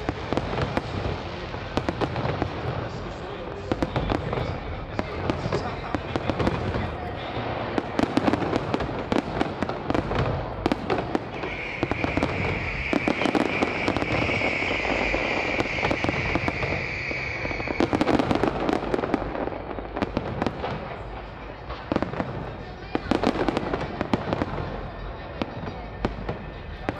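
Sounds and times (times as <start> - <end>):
fireworks bangs and crackling: 0.0 - 26.9
high whistling tone: 11.3 - 18.7.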